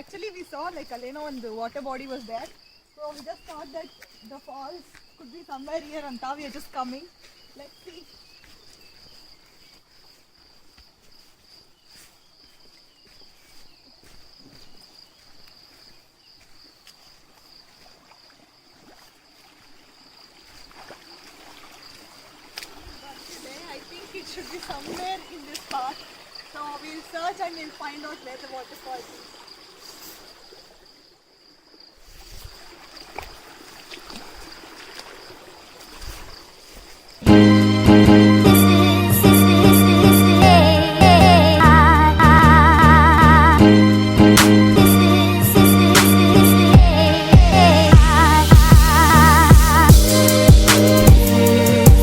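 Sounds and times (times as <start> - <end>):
insects trilling: 0.0 - 37.7
forest stream rushing: 0.0 - 52.0
loud background music: 37.3 - 52.0.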